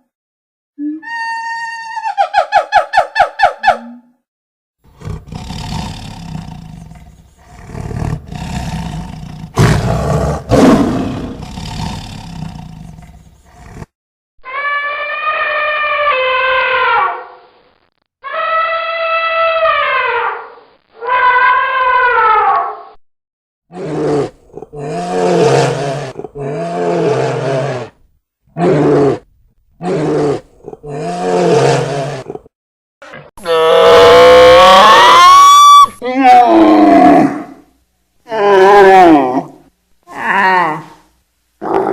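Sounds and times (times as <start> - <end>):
big cat roaring and growling: 4.9 - 13.9, 23.7 - 32.5, 33.1 - 35.2, 36.2 - 37.6, 38.3 - 41.0, 41.6 - 41.9
falling pitched animal call: 14.4 - 17.4, 18.2 - 22.8, 33.4 - 37.6.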